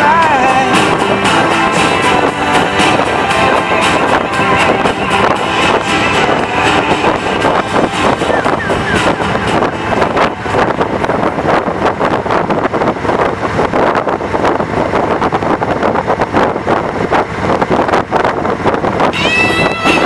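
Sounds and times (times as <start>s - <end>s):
road rumble: 0.0s - 20.0s
wind buffeting microphone: 0.0s - 20.0s.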